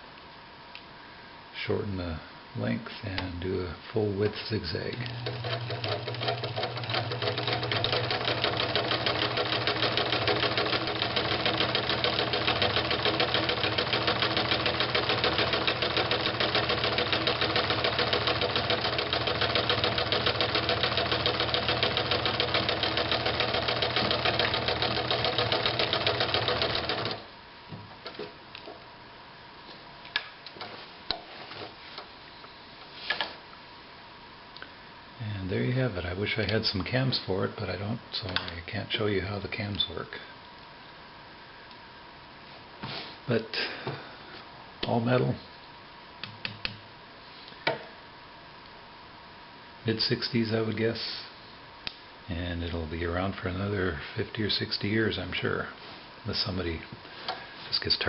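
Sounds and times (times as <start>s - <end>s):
sewing machine running: 5.1s - 27.3s.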